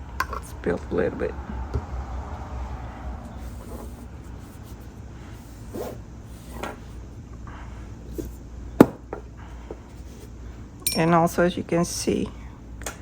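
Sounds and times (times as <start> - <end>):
low steady hum: 0.0 - 13.0
objects scraping on work table: 3.3 - 4.8, 5.4 - 7.0.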